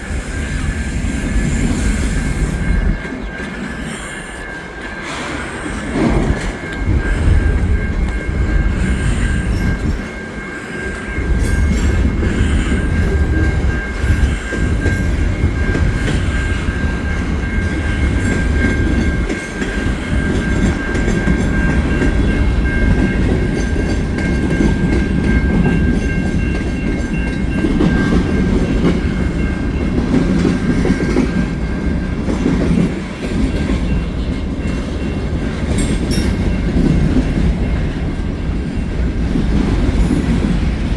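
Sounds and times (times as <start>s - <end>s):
heavy train rumble: 0.0s - 40.9s
train wheels clacking over rail joints: 0.0s - 40.9s.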